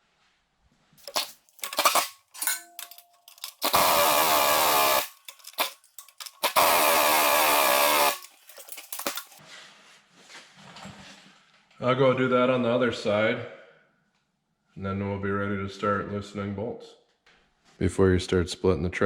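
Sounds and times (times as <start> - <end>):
metal parts clicking and knocking: 1.0 - 9.4
power tool motor whine: 1.0 - 9.4.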